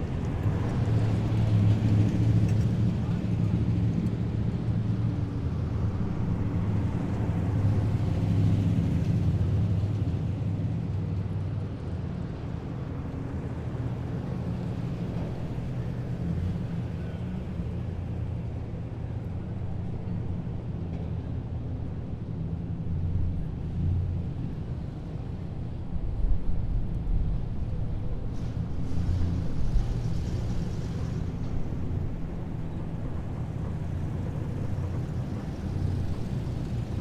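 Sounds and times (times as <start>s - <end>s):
heavy vehicles driving past: 27.4s - 37.0s.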